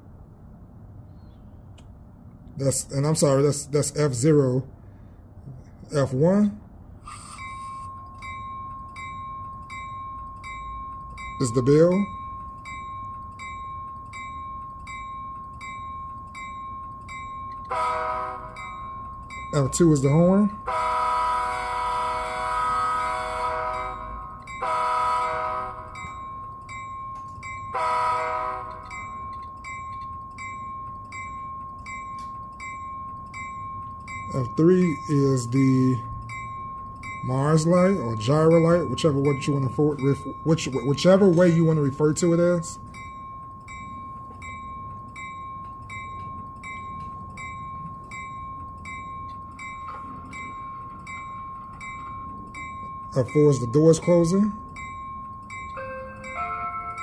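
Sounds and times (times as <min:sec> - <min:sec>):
locomotive bell ringing: 0:02.6 - 0:57.0
high-pitched hum: 0:05.4 - 0:24.6
locomotive air horn blasts: 0:17.7 - 0:18.6, 0:20.6 - 0:26.0, 0:27.7 - 0:28.9.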